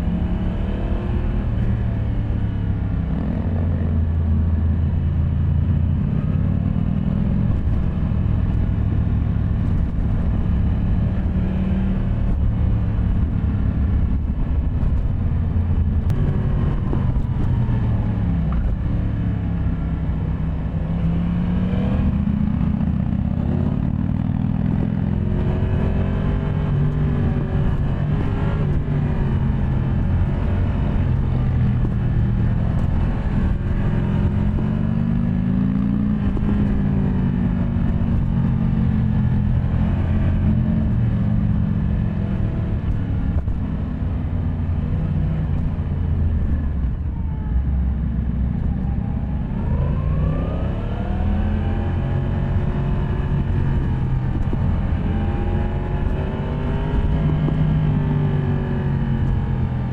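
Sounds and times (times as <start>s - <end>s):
motorcycle engine revving: 20.5s - 47.0s, 48.6s - 59.9s.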